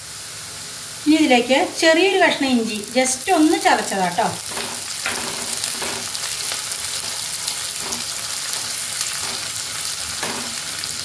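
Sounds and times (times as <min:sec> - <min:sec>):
onions sizzling in hot oil: 0:00.0 - 0:11.0
spatula stirring: 0:03.3 - 0:10.8.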